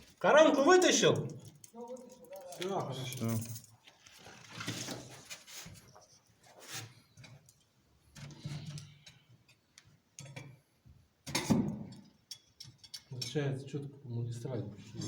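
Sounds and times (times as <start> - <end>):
rustling of things handled: 0.0 - 9.0.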